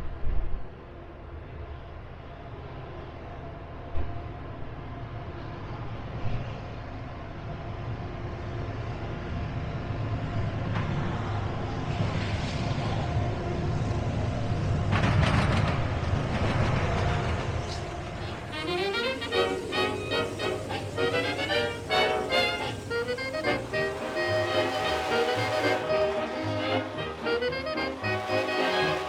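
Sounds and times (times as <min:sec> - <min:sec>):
train rumbling: 0:00.0 - 0:29.0
rushing surge: 0:11.1 - 0:29.0.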